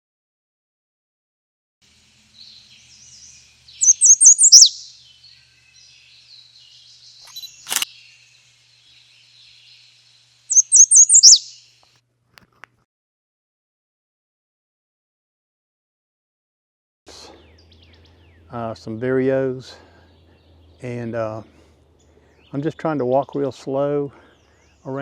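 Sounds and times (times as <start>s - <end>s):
faint calls of other birds: 1.9s - 11.9s, 17.1s - 25.0s
songbird singing high notes: 2.4s - 7.9s, 10.5s - 11.7s
sharp click: 7.2s - 7.9s.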